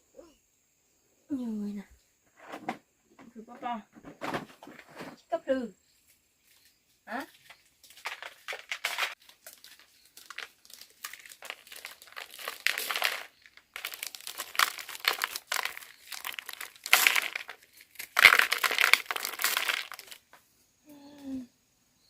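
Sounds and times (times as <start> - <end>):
crinkly wrapping rustling: 7.3 - 20.3.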